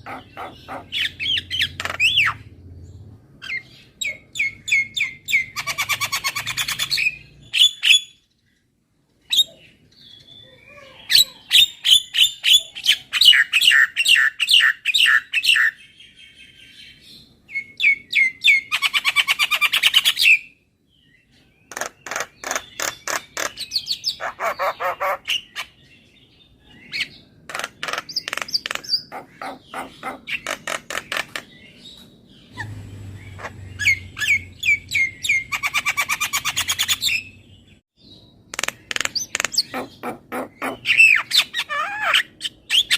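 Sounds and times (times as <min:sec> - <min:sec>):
bird chirping sharply: 0:27.8 - 0:42.9.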